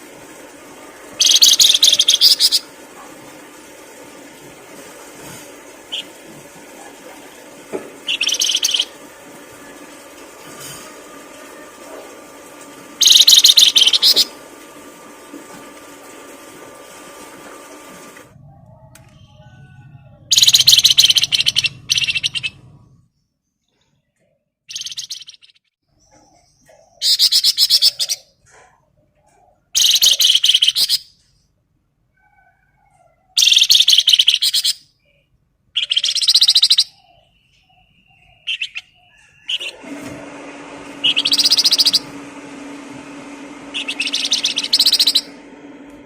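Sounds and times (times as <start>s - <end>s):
songbird trilling: 1.2s - 2.7s, 8.1s - 8.9s, 13.0s - 14.3s, 20.3s - 22.6s, 35.8s - 39.7s, 41.0s - 42.0s, 43.8s - 45.3s.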